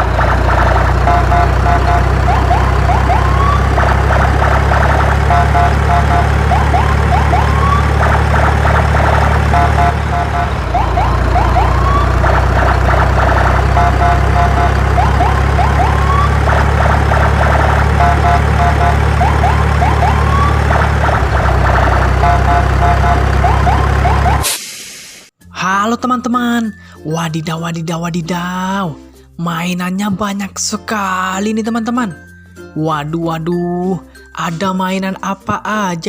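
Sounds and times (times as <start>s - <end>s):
electronic siren beeps and whoops: 1.0s - 8.4s, 9.0s - 24.5s.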